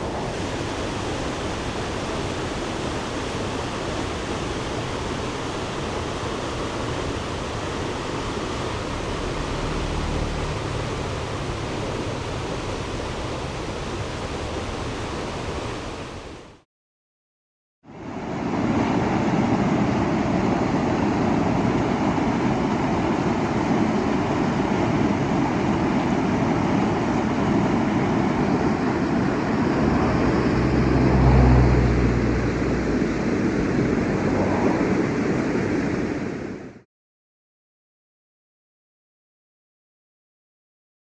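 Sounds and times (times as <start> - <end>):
mountain stream rushing: 0.0 - 16.6
low rumble: 29.6 - 35.8.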